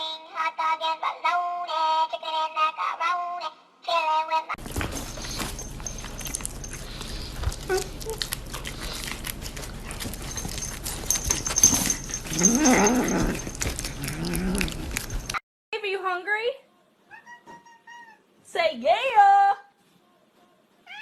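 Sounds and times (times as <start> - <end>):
rustling and clicking handling noise: 4.6 - 15.4
pet animal whining cry: 5.2 - 15.4.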